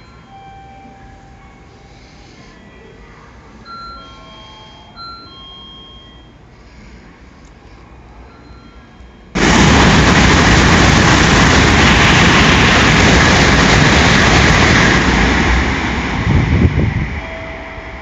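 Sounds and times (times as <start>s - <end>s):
train passing at speed: 6.4s - 18.0s.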